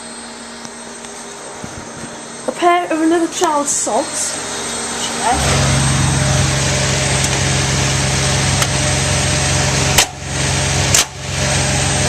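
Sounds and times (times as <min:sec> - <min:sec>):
washing machine humming: 0:03.1 - 0:12.0.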